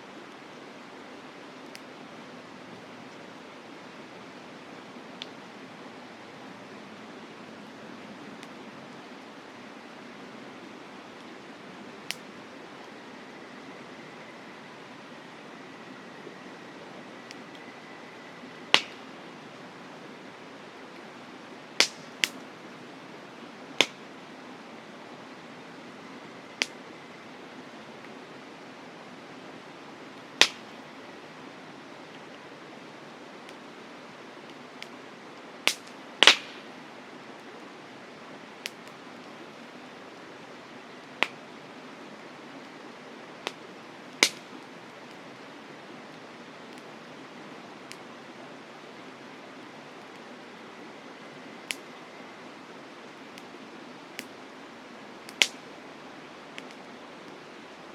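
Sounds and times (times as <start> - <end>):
steady rushing hiss: 0.0 - 57.9
wood crackling in fire: 0.0 - 57.9
campfire wood popping: 8.4 - 9.2, 10.8 - 14.0, 18.5 - 19.4, 20.8 - 22.6, 23.4 - 24.2, 26.2 - 28.2, 30.0 - 31.3, 34.4 - 37.7, 38.4 - 39.7, 40.5 - 41.5, 42.6 - 50.4, 51.2 - 55.8, 56.4 - 57.8
sharp pops: 18.7 - 19.0, 21.8 - 22.4, 30.4 - 30.7, 35.7 - 36.7, 44.2 - 44.5.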